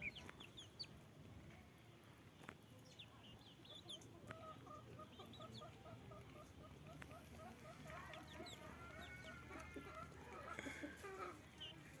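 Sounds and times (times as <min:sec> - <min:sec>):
chickens clucking: 0:00.0 - 0:01.6, 0:02.4 - 0:12.0.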